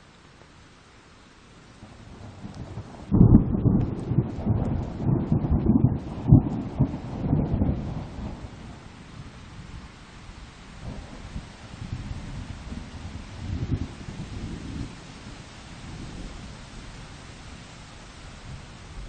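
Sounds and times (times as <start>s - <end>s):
steady rain: 0.0s - 19.0s
thunder rumbling: 1.8s - 9.9s, 10.8s - 17.7s.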